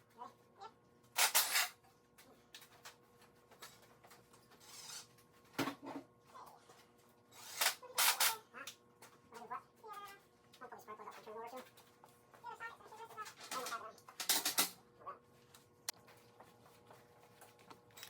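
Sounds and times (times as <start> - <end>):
tools clanking and clicking: 13.2 - 14.8.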